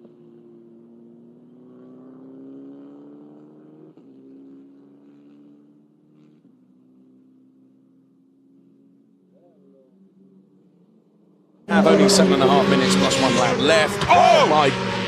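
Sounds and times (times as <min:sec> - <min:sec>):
race car engine under load: 0:11.7 - 0:15.0.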